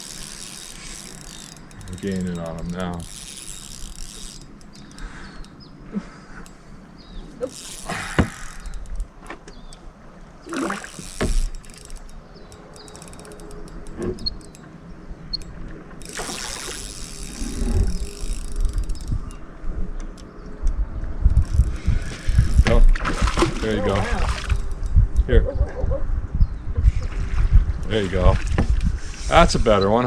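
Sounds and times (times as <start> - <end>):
fishing reel clicking: 0.0 - 5.7, 7.4 - 9.8, 10.5 - 20.3, 21.3 - 22.8, 23.6 - 25.0
fish splashing in water: 10.4 - 12.0, 16.1 - 18.2, 22.2 - 24.8.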